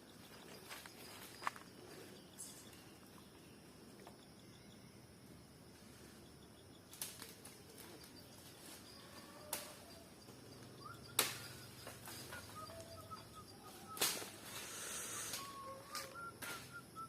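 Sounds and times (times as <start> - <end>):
bird chirps: 7.6 - 17.0.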